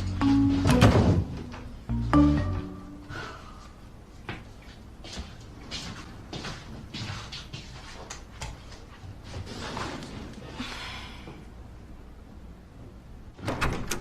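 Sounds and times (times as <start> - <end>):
sliding door clattering: 13.3 - 14.0
sliding door clicks: 13.4 - 14.0.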